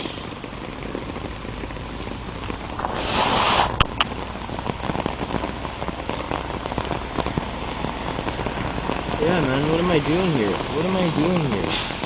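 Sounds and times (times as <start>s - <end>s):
rain pattering: 0.0s - 12.0s
brief rush of noise: 2.8s - 4.0s.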